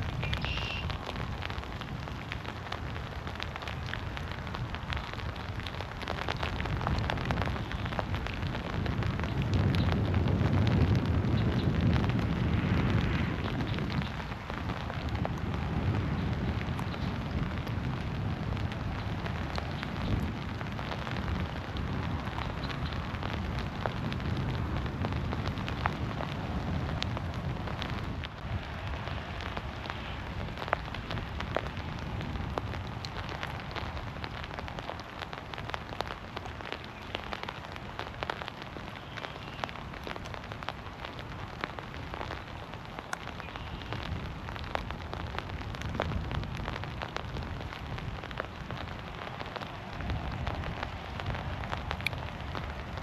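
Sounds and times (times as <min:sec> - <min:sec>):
heavy rain falling through trees: 0:00.0 - 0:53.0
raindrops ticking: 0:00.0 - 0:53.0.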